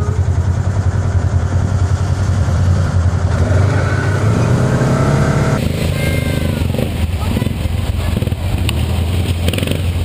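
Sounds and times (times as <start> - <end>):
engine idling: 0.0 - 10.0
engine revving: 0.0 - 10.0.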